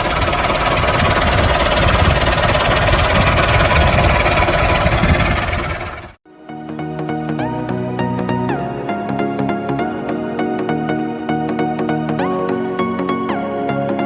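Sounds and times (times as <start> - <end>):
small motor running with rattle: 0.0 - 6.2.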